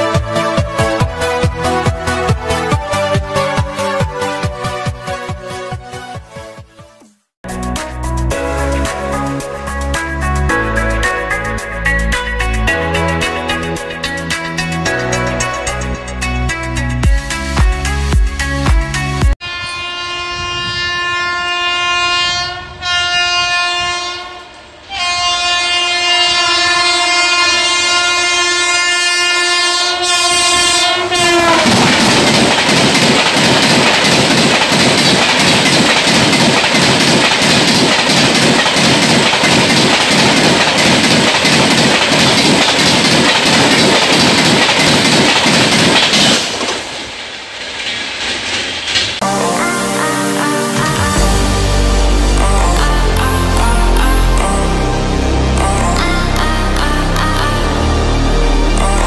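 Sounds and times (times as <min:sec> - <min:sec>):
train horn blasts: 0:19.4 - 0:32.0
train wheels clattering over rails: 0:31.4 - 0:49.2.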